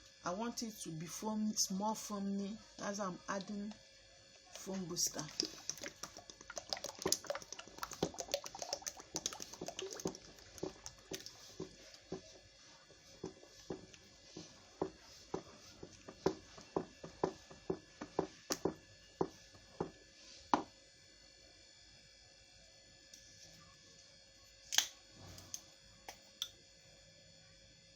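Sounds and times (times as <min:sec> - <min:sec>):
stirrer knocking against container: 0:05.2 - 0:20.0.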